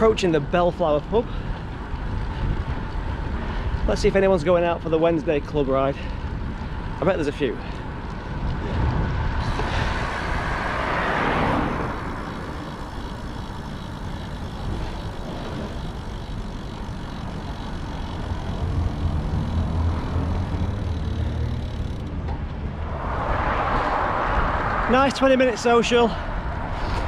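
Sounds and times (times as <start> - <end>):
road noise while cycling: 0.0 - 27.0
wind noise: 1.1 - 27.0
low engine hum: 6.0 - 27.0
vehicle passing: 7.8 - 27.0.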